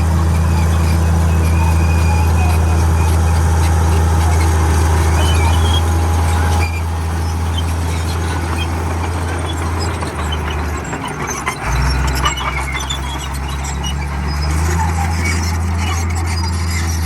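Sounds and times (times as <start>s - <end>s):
bulldozer diesel engine droning: 0.0s - 17.0s
faint high squeaks: 0.0s - 17.0s.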